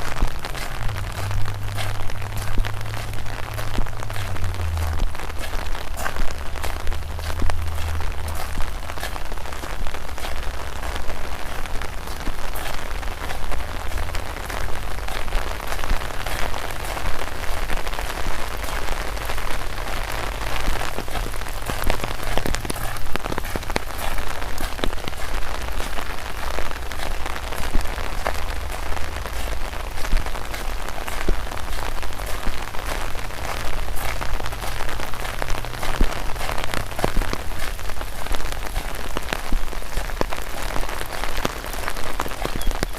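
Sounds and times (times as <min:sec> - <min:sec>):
low rumble: 0:00.0 - 0:09.7
raindrops tapping: 0:00.0 - 0:42.9.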